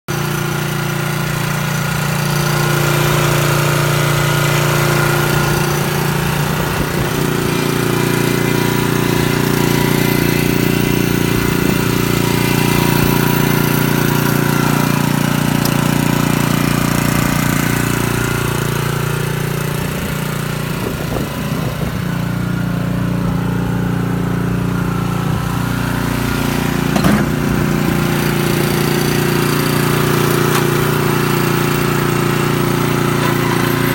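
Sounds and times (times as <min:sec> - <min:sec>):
crawler carrier engine running: 0:00.1 - 0:33.9.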